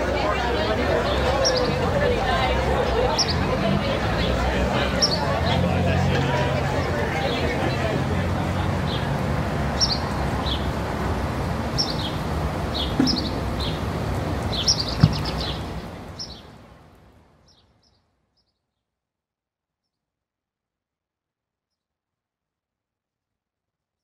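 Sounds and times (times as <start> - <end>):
steady background noise: 0.0 - 17.4
small birds chirping: 8.6 - 19.0
short knock: 13.0 - 13.5, 15.0 - 15.4.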